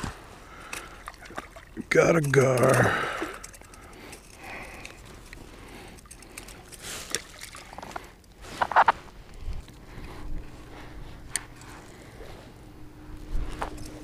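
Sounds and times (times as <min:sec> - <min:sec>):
water splashing and trickling: 0:00.0 - 0:05.0, 0:05.6 - 0:08.3.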